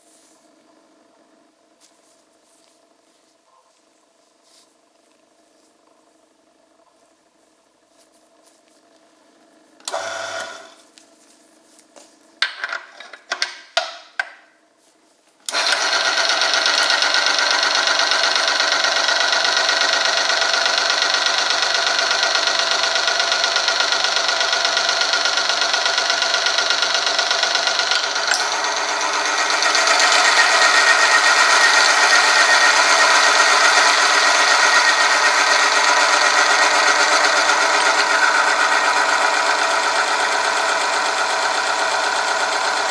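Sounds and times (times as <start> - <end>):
machine motor whine: 9.8 - 10.9, 15.5 - 42.9.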